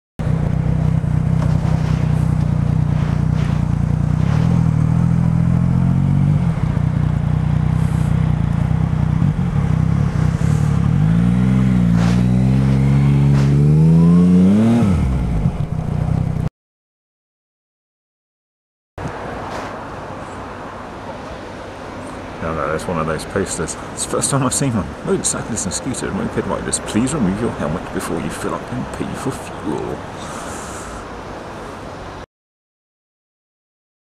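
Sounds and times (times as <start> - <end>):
motorcycle engine accelerating: 0.2 - 16.5.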